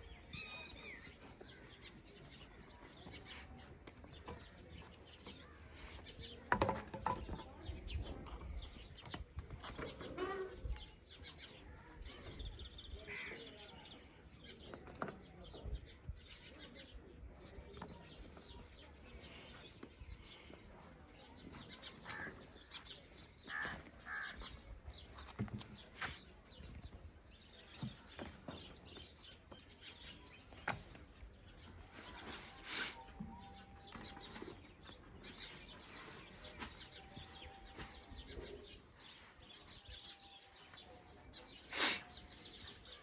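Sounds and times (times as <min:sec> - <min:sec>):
bird chirps: 0:27.5 - 0:43.0.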